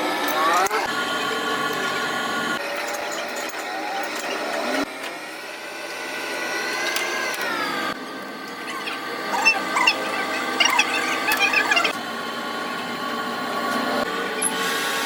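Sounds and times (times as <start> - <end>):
power tool motor whining: 3.4 - 15.0.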